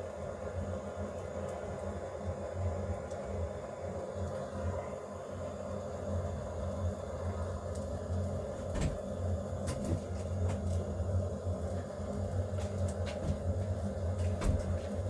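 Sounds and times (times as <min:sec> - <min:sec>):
steady low hum: 0:00.0 - 0:15.0
light knocks and clicks: 0:14.1 - 0:15.0.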